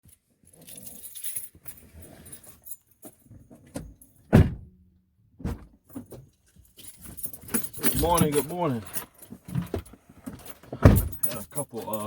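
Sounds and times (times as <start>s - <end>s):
loud thump: 4.3s - 4.8s, 5.4s - 5.7s, 10.8s - 11.2s
rustling and clicks of handling: 5.9s - 12.0s.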